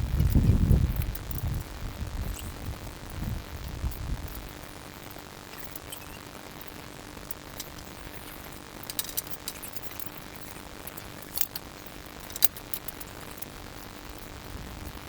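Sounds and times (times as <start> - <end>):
faint steady hum: 0.0 - 15.0
light metallic clinks: 7.3 - 13.5.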